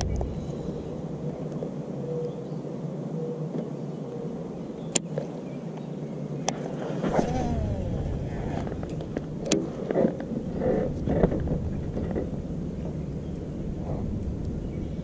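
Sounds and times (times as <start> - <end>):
low steady rumble: 0.0 - 2.5, 7.1 - 15.0
short irregular sounds: 6.9 - 9.3.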